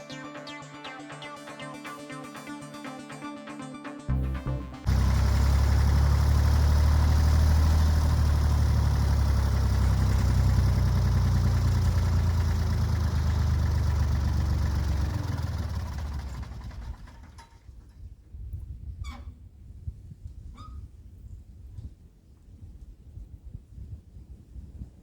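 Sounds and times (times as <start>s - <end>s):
backhoe engine running: 4.1s - 17.6s.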